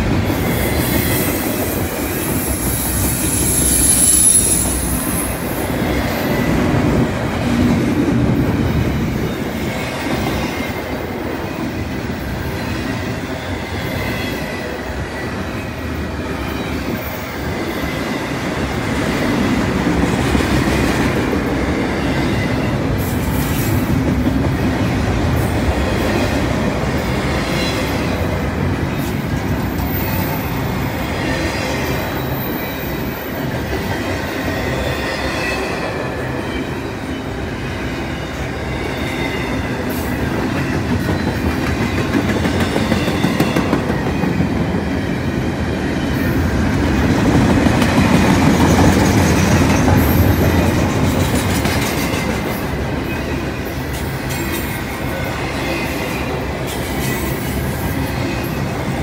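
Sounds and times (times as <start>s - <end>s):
freight train wheels rumbling: 0.0s - 59.0s
wheel squeal: 2.3s - 5.4s.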